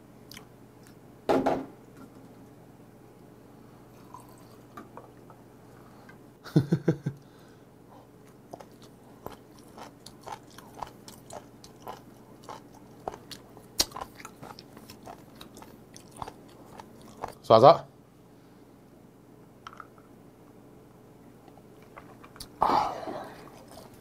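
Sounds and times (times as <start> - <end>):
person chewing: 0.3 - 1.0, 8.2 - 17.4, 21.8 - 24.0
wet mouth clicks and smacks: 13.8 - 14.1.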